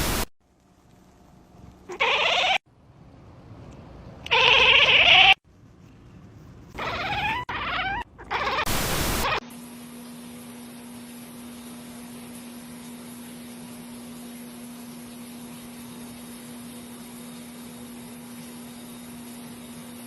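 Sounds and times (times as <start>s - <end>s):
cat meowing: 1.9s - 2.6s, 4.3s - 5.4s, 6.8s - 8.7s.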